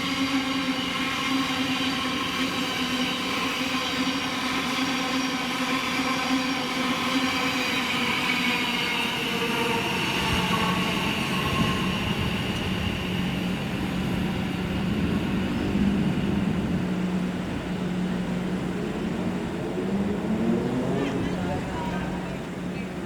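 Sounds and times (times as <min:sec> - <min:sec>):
wheels rumbling on rails: 0:07.0 - 0:23.0
train motors whining: 0:10.0 - 0:23.0.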